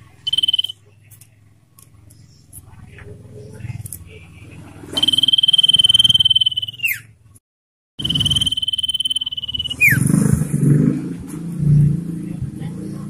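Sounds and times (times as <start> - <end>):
bird whistling long high note: 0.2 - 0.7, 5.0 - 7.0, 8.0 - 10.0.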